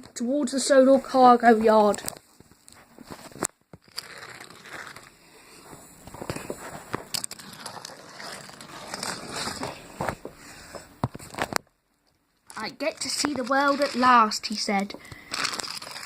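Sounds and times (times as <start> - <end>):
toy train rattling on track: 12.9 - 14.2.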